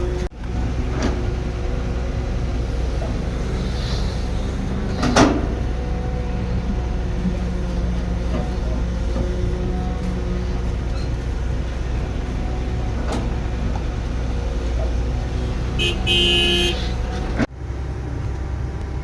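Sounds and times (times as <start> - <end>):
heavy machinery engine running: 0.0 - 19.0
two-part horn toot: 15.8 - 17.0.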